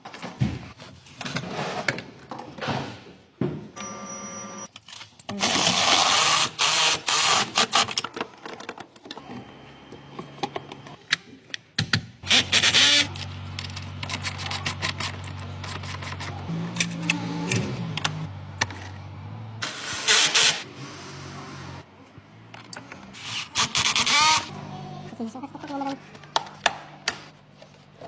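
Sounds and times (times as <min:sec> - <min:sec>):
tools clicking and rattling: 0:11.0 - 0:19.0
power tool bursts: 0:12.2 - 0:13.2, 0:19.6 - 0:20.7.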